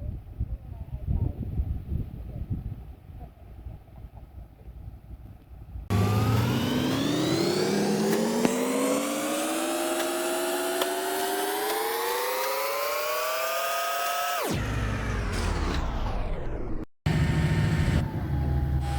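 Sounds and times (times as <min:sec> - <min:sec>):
motor whining: 0:05.9 - 0:18.9.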